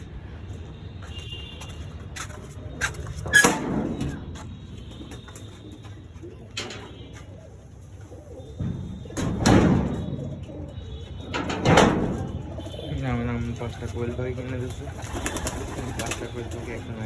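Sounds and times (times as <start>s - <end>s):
pigeons chirping: 2.0s - 17.0s
knocks and clatter: 8.6s - 10.4s, 11.2s - 12.8s.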